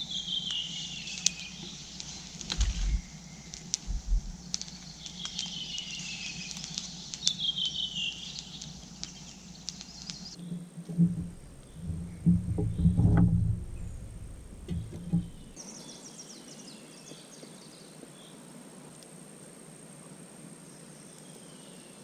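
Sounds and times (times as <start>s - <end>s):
bird whistling: 0.0s - 1.9s, 2.8s - 10.5s
campfire crackling and popping: 0.0s - 15.6s.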